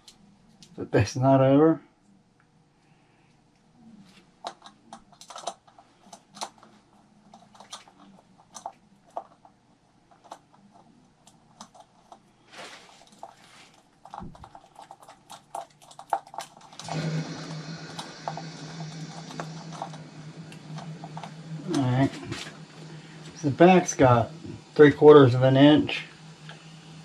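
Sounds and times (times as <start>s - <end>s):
short rustle: 12.4s - 13.9s.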